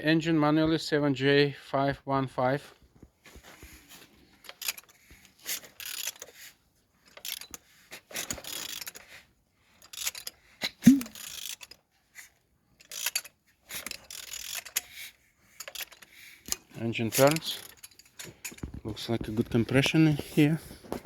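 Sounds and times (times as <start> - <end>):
wrench turning engine scraping clicking: 3.8 - 20.5.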